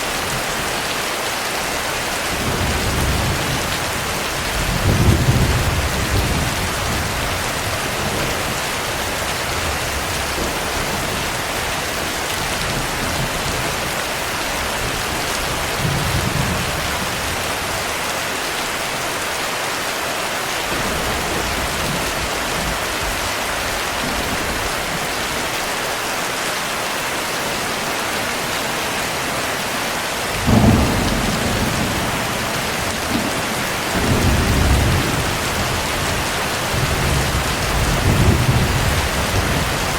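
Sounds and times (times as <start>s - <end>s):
heavy rain: 0.0s - 39.9s
thunder rumbling: 2.3s - 13.8s, 28.2s - 39.9s.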